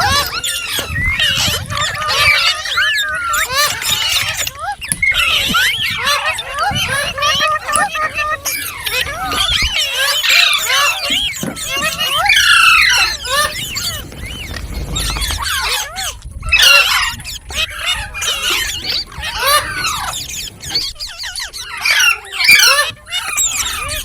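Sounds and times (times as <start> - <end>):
parrot chirping and squawking: 0.0 - 24.0.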